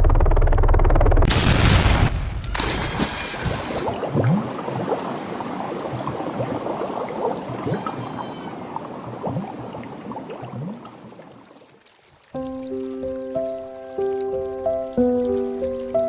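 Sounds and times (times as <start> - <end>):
rain: 2.5 - 16.0
splashing bubbling water: 2.6 - 14.0.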